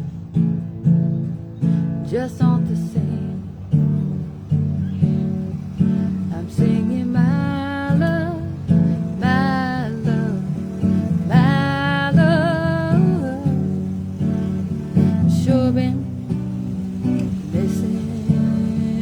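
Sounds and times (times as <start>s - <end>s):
acoustic guitar strumming: 0.0s - 19.0s
woman singing long notes: 6.3s - 13.9s, 15.0s - 16.3s.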